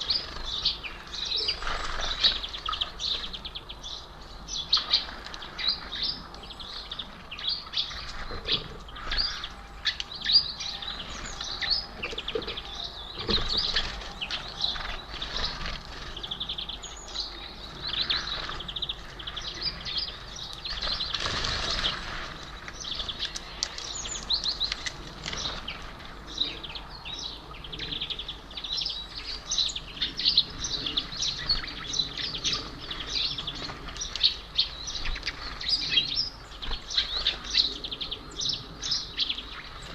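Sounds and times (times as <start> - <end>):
wings fluttering: 0.0 - 3.0, 11.0 - 16.8, 17.7 - 26.2
small birds chirping: 0.0 - 39.9.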